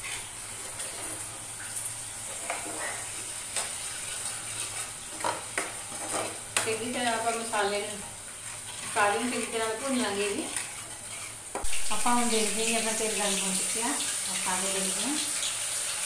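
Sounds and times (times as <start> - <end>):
paste sizzling in hot oil: 0.0 - 16.0
ladle scraping pan: 8.3 - 13.0.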